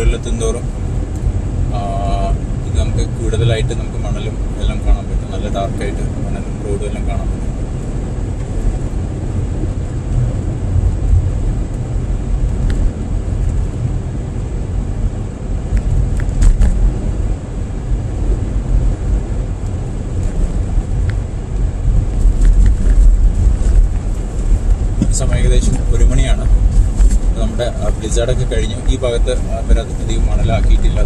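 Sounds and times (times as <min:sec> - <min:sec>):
tyre and engine rumble: 0:00.0 - 0:31.0
light ticks: 0:12.5 - 0:13.8.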